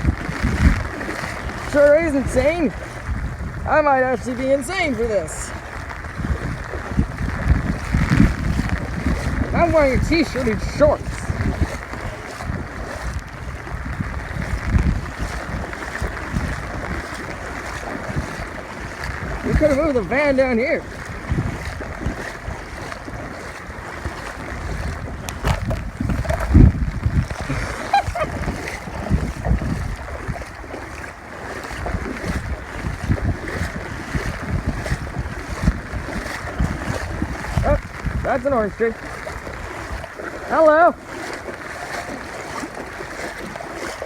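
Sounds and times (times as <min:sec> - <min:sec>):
heavy rain: 0:00.0 - 0:03.5, 0:05.5 - 0:10.1
wind buffeting microphone: 0:00.0 - 0:44.0.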